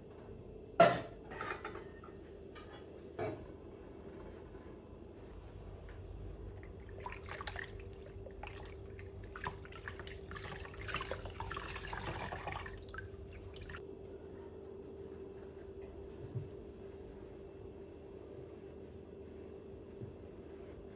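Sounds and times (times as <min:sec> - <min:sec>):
steady low hum: 0:00.0 - 0:20.9
tap water splashing in sink: 0:06.6 - 0:13.8.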